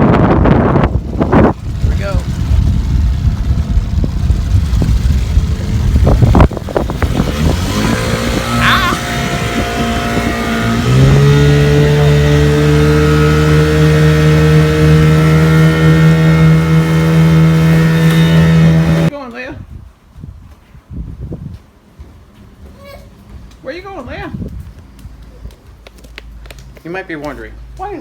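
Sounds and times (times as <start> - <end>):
wind and water rushing: 0.0 - 19.1
outboard motor running: 0.4 - 19.1.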